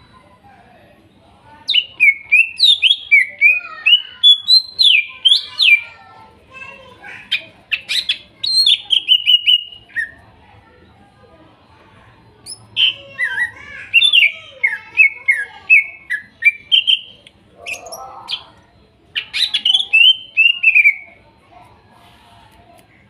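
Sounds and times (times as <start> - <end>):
bird whistling song: 1.7 - 5.8, 7.7 - 10.2, 12.4 - 21.2.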